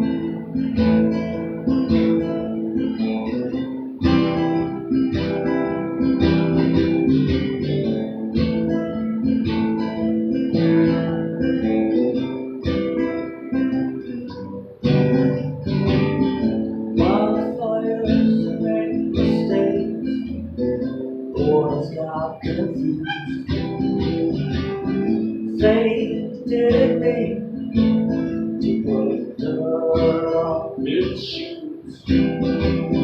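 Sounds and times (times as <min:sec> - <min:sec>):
acoustic guitar strumming: 0:00.0 - 0:33.0
person singing folk song: 0:10.4 - 0:33.0.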